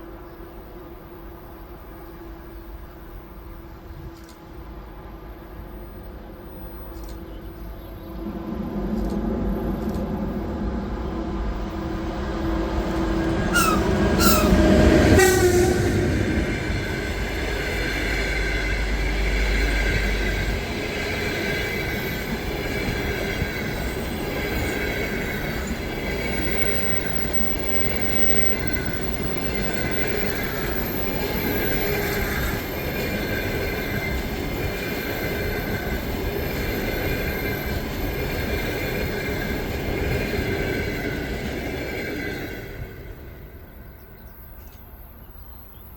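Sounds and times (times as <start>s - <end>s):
electric locomotive rumble: 0.0s - 45.8s
train wheels squealing: 13.1s - 18.6s, 21.3s - 41.3s
locomotive horn: 13.4s - 17.4s.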